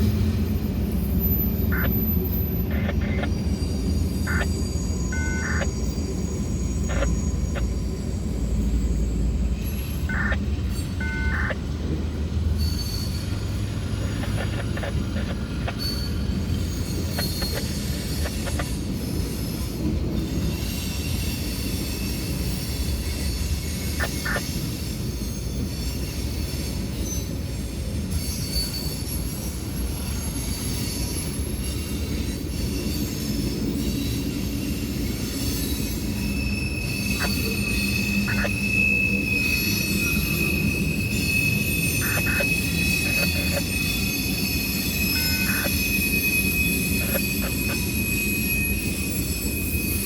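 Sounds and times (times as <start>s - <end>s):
freight train wheels rumbling: 0.0s - 50.0s
high-pitched wheel squeal: 1.1s - 11.7s, 12.5s - 24.6s, 32.5s - 50.0s
sharp clicks: 45.2s - 45.8s.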